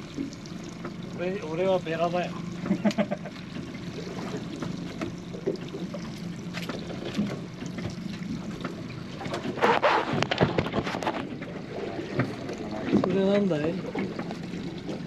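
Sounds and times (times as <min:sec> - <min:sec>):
boat engine idling: 0:00.0 - 0:15.0
water lapping against hull: 0:00.0 - 0:15.0.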